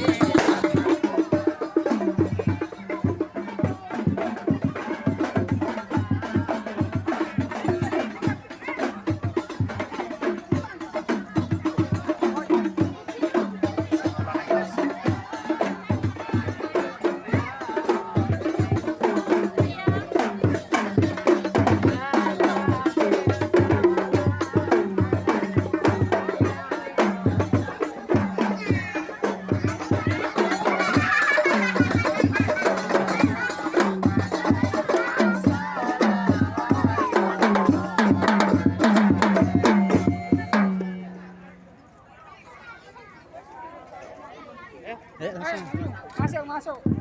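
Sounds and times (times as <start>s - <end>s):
devotional chanting: 0.0s - 41.2s
driving drum beat: 0.0s - 41.7s, 45.4s - 47.0s.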